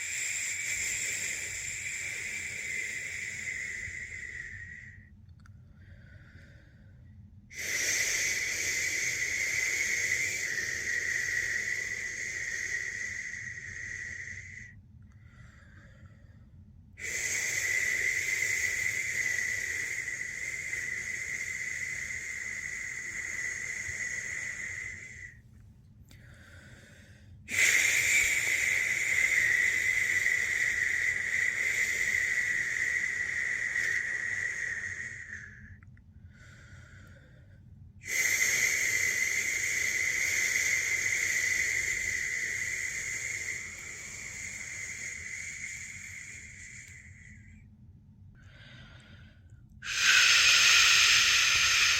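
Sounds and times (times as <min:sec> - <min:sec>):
person shushing: 0:49.8 - 0:51.9.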